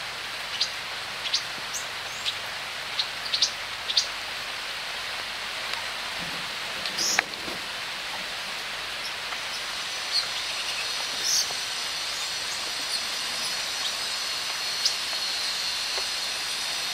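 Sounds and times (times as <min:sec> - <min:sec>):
outdoor hiss: 0:00.0 - 0:16.9
bird chirps: 0:09.0 - 0:11.5.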